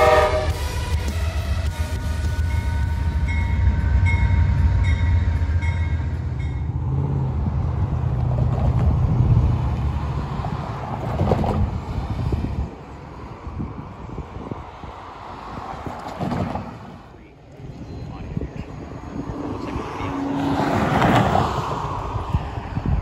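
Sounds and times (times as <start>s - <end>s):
train cars rumbling past: 0.0s - 23.0s
crossing bell ringing: 2.0s - 7.0s.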